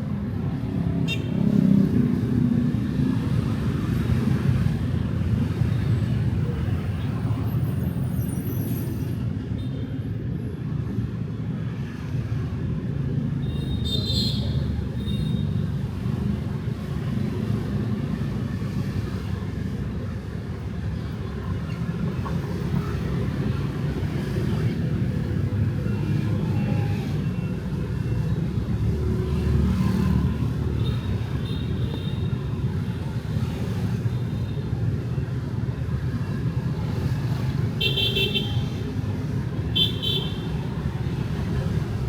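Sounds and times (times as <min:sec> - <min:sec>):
city traffic rumble: 0:00.0 - 0:42.0
motorbikes passing: 0:16.0 - 0:42.0.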